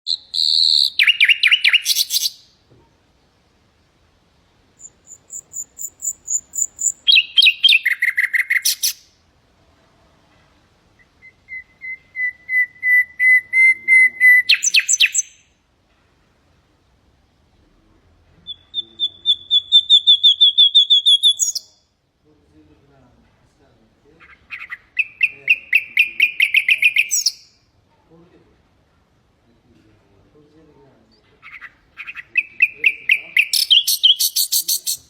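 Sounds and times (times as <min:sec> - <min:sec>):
nightingale singing: 0:00.0 - 0:02.6, 0:04.7 - 0:09.2, 0:10.9 - 0:15.6, 0:18.4 - 0:22.0, 0:24.2 - 0:27.7, 0:31.1 - 0:35.0.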